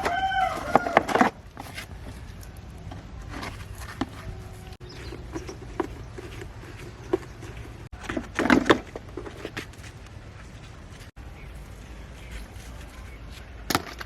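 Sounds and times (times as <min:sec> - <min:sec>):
knocks and clatter: 0:00.0 - 0:11.1.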